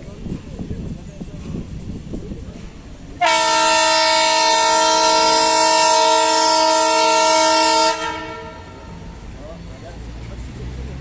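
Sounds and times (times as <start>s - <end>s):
multi-tone air horn blast: 3.2s - 9.0s.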